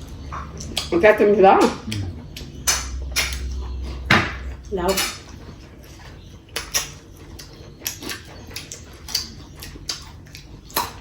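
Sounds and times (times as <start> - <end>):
person eating with mouth clicks: 0.0 - 0.9, 1.7 - 4.6.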